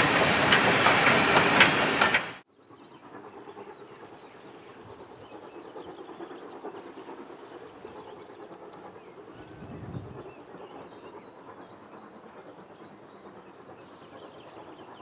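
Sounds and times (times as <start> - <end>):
wheels clicking over rail joints: 0.0 - 2.4
steam train passing: 0.0 - 15.0.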